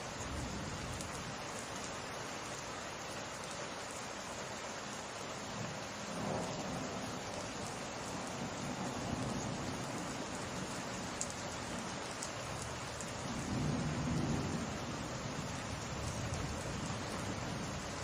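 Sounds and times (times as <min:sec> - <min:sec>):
rain pattering: 0:00.0 - 0:18.0
distant thunder rumbling: 0:06.0 - 0:07.2, 0:13.3 - 0:17.8.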